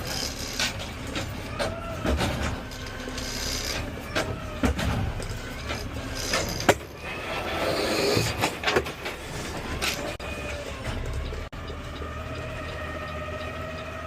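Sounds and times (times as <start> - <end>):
clanks and rattles: 0.0 - 14.0
garbage truck running: 0.0 - 14.0.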